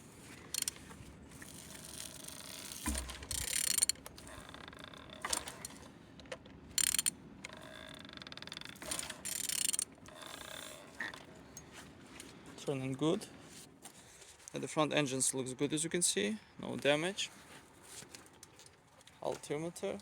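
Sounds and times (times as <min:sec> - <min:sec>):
ratchet wrench clicking: 0:00.5 - 0:00.8, 0:01.5 - 0:05.7, 0:06.8 - 0:10.8.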